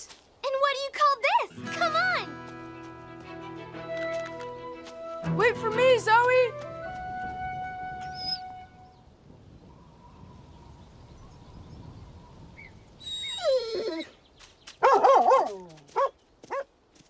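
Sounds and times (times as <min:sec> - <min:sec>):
cartoon dog whining: 0:13.1 - 0:14.1.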